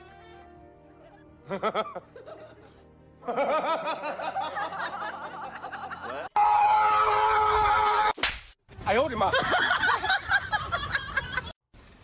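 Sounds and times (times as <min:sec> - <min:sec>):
laughter: 0:01.0 - 0:06.4, 0:09.2 - 0:11.6.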